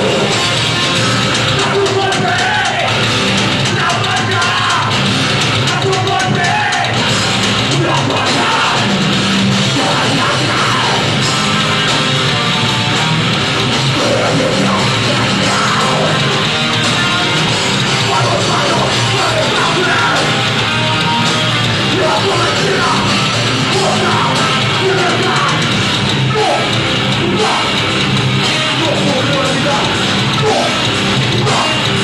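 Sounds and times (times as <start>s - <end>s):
heavy rock band playing: 0.0s - 32.0s
person yelling vocals: 18.0s - 20.4s, 21.9s - 25.7s, 26.3s - 27.8s, 30.4s - 30.8s.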